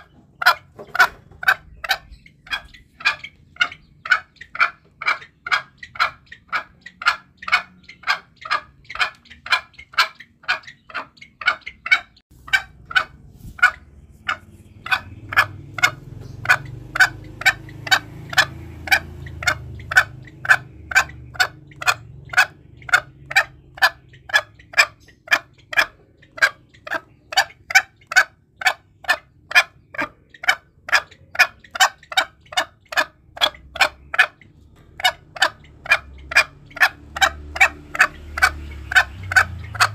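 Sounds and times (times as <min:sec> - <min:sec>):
junglefowl calling: 0:00.0 - 0:39.9
low rumble: 0:12.3 - 0:24.2.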